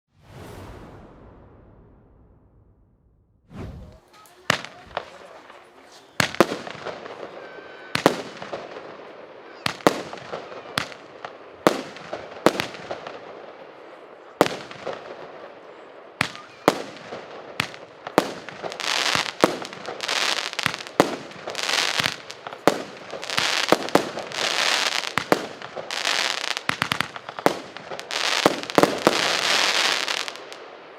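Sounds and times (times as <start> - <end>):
firework bangs with hiss: 3.5 - 13.5, 14.4 - 15.5, 16.2 - 30.9.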